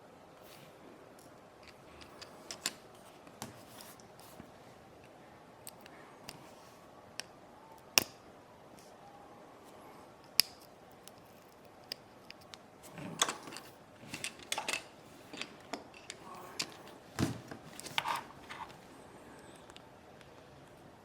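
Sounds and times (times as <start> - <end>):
small tools clicking and scraping: 10.3 - 17.0.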